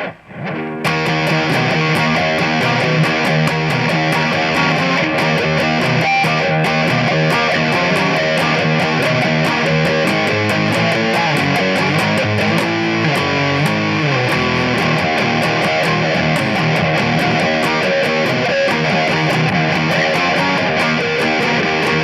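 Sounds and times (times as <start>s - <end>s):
fuzz electric guitar riffs: 0.0s - 22.0s.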